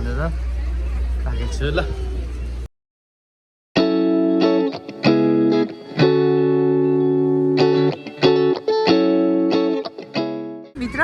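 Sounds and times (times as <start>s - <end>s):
distorted electric guitar music: 3.8s - 11.0s.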